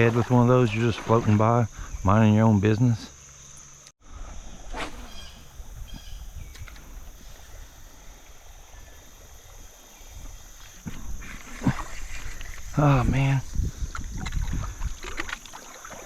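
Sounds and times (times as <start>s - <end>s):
faint moving water hiss: 0.0s - 16.0s
wind rumble on microphone: 4.3s - 15.4s.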